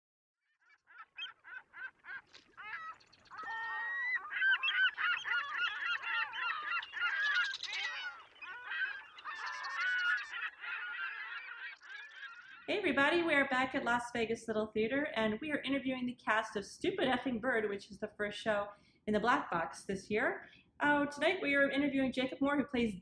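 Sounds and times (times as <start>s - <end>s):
geese honking: 0.9s - 12.7s.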